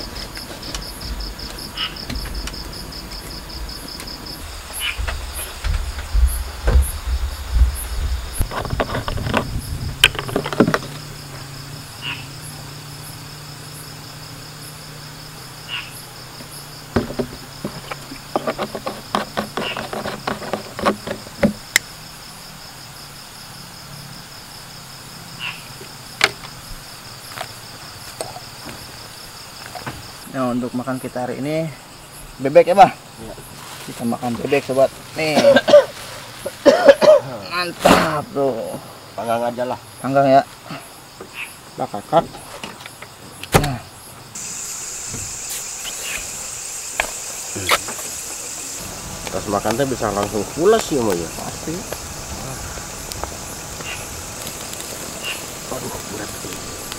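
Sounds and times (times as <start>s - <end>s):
insects trilling: 0.0s - 56.9s
knocks and clatter: 5.0s - 11.4s, 16.4s - 21.8s.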